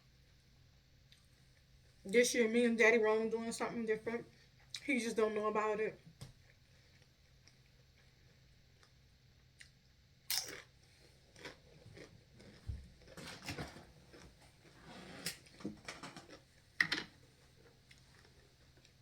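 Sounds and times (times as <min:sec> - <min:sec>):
crunching tortilla chips: 0:10.3 - 0:14.4.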